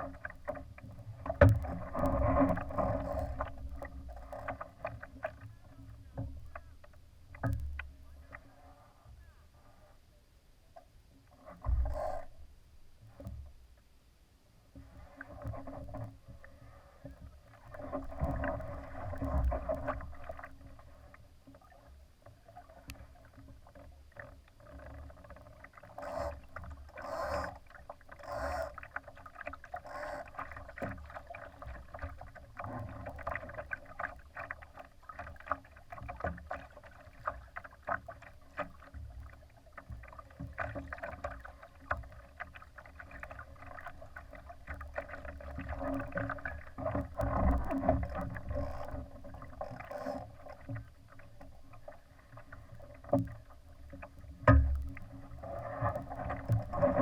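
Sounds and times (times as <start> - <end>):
water slapping against boat hull: 0.0 - 8.4, 23.4 - 51.9.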